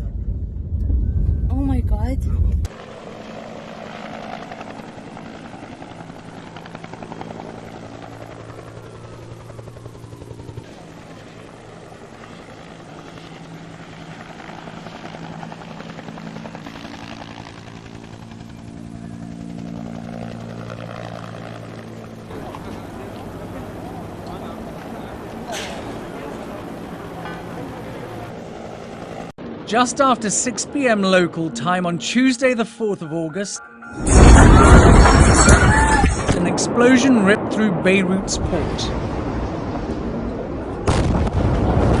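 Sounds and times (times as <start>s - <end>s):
mechanical drone: 33.9s - 37.5s.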